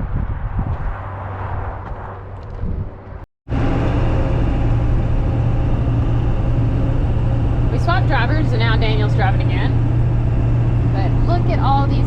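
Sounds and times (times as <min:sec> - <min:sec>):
outdoor wind noise: 0:00.0 - 0:12.0
road and wind noise: 0:00.0 - 0:12.0
truck engine hum inside cab: 0:03.5 - 0:12.0.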